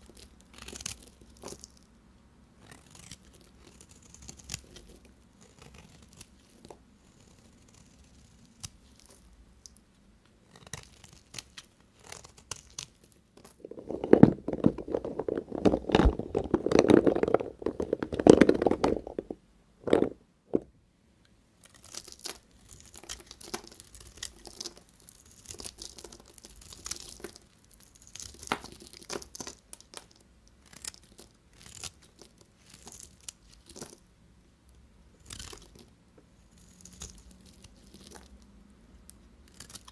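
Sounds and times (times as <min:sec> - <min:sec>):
soap crunching: 0:00.0 - 0:01.8, 0:21.7 - 0:34.0, 0:39.5 - 0:39.9
knife cutting dry soap: 0:02.6 - 0:09.8.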